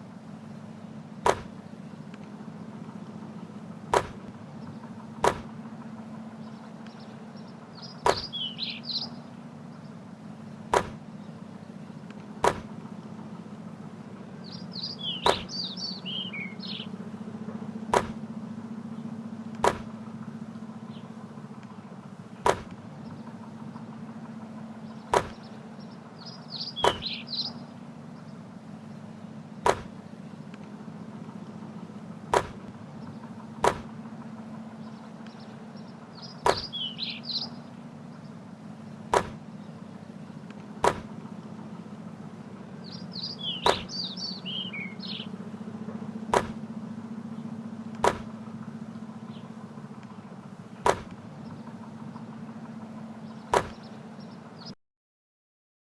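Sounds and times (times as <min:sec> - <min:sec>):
birds chirping: 0:00.0 - 0:54.8
steady low hum: 0:00.0 - 0:54.8
basketball hitting: 0:01.2 - 0:01.6, 0:03.9 - 0:04.4, 0:05.2 - 0:05.6, 0:08.0 - 0:08.3, 0:10.7 - 0:11.0, 0:12.4 - 0:12.7, 0:15.2 - 0:15.5, 0:17.9 - 0:18.2, 0:19.6 - 0:19.9, 0:22.4 - 0:22.8, 0:25.1 - 0:25.4, 0:29.6 - 0:30.0, 0:32.3 - 0:32.8, 0:33.6 - 0:34.0, 0:36.4 - 0:36.7, 0:39.1 - 0:39.4, 0:40.8 - 0:41.1, 0:43.6 - 0:43.9, 0:46.3 - 0:46.6, 0:48.0 - 0:48.3, 0:50.8 - 0:51.2, 0:53.5 - 0:53.8.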